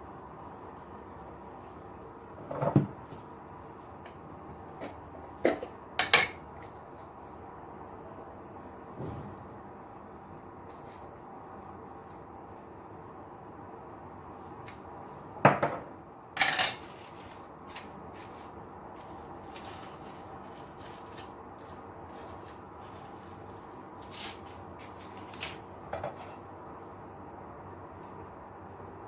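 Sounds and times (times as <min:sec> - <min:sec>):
steady background noise: 0:00.0 - 0:29.0
dishes and utensils clattering: 0:04.8 - 0:06.5, 0:15.5 - 0:18.5, 0:24.1 - 0:26.4.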